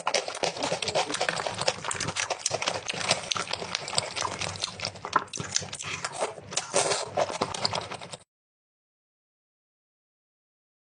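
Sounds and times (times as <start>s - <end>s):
crunchy chewing of food: 0.0s - 8.2s.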